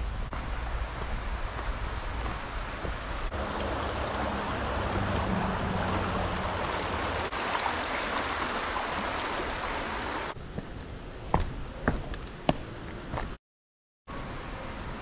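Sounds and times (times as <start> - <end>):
water rushing over falls: 0.3 - 10.4.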